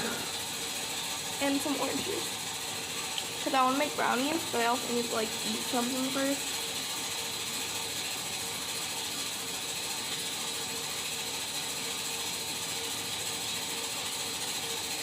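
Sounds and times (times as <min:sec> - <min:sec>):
faint hum: 0:00.0 - 0:02.5, 0:03.1 - 0:06.6
furnace rapid mechanical clicking: 0:00.0 - 0:15.0.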